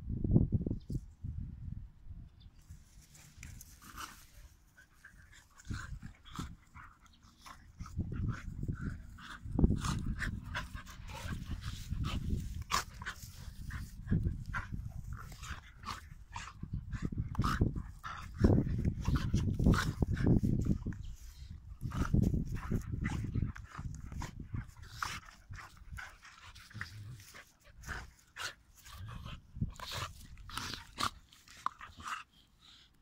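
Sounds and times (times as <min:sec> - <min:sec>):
dogs play-fighting: 0:02.9 - 0:33.0.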